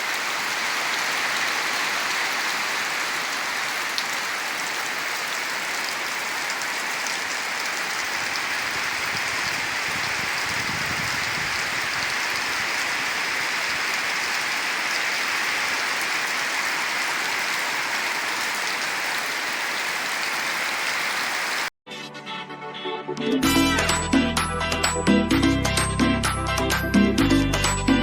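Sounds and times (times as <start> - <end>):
heavy rain falling: 0.0 - 21.7.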